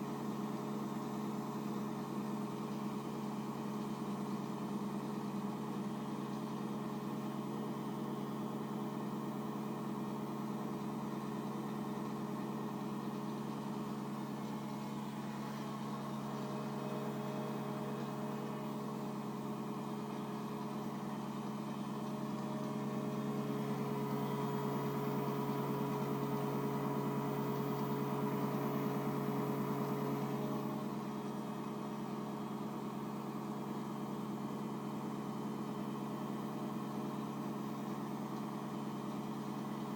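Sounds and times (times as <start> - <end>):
washing machine spinning hum: 0.0 - 39.9.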